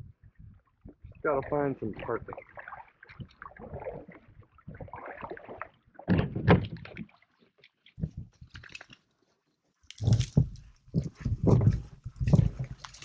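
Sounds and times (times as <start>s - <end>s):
knocks and scrapes against hull: 0.0s - 9.0s, 9.9s - 13.0s
hollow thuds: 6.0s - 7.0s.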